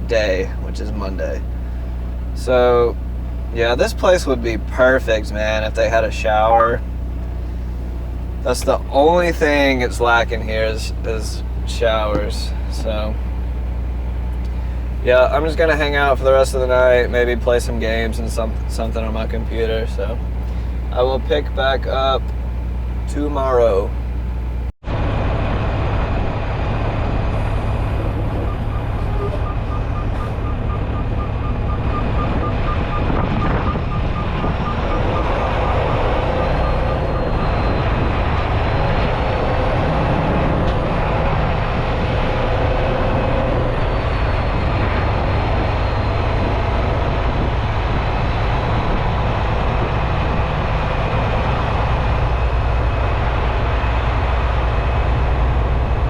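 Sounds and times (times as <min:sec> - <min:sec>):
truck engine and road noise: 0:00.0 - 0:56.0
high beeps: 0:28.4 - 0:35.4.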